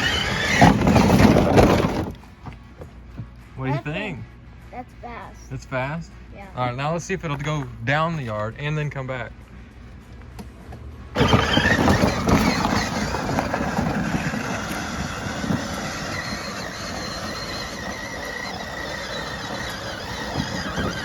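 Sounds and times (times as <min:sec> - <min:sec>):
electric toy truck motor whining: 0:00.0 - 0:02.2, 0:11.2 - 0:21.0.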